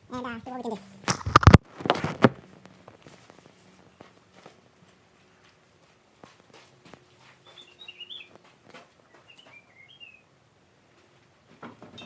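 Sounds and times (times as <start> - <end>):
faint bird chirps: 7.4 - 8.4, 9.1 - 10.2.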